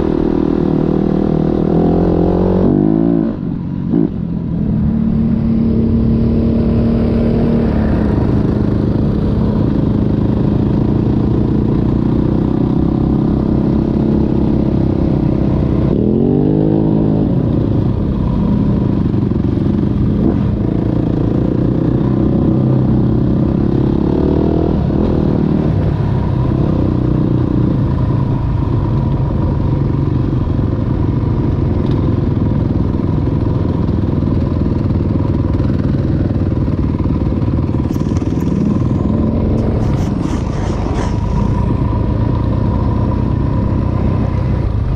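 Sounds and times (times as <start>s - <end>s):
dirt bike engine running: 17.6s - 44.9s.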